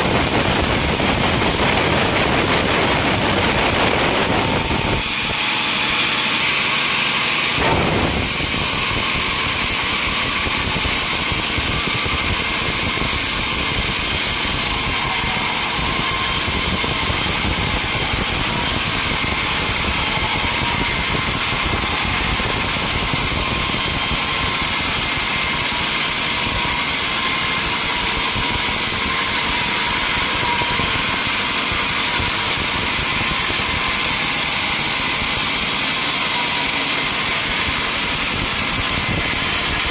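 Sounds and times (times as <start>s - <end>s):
sawmill saw and motor running: 0.0s - 39.9s.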